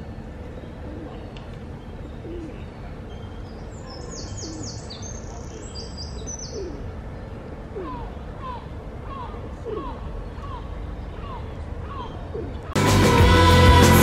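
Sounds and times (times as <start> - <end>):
bird cooing: 0.6 - 3.0, 4.2 - 5.4, 6.4 - 7.0, 7.6 - 12.8.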